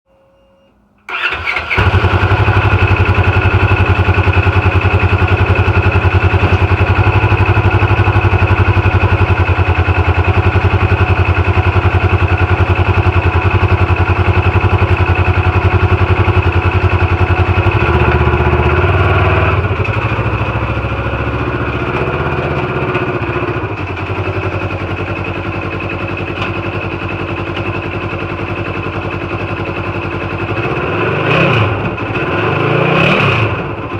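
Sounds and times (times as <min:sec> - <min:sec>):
engine cranking: 0:01.1 - 0:08.4
engine idling: 0:01.1 - 0:32.2.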